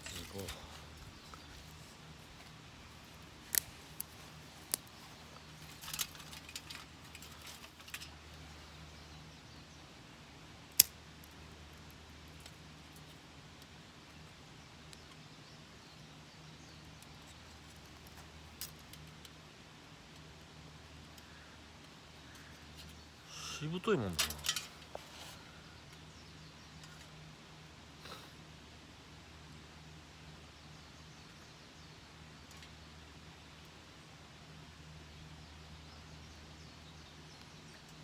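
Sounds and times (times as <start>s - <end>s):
sharp clicks of metal stove: 3.4s - 8.2s, 10.7s - 11.3s, 24.2s - 25.0s.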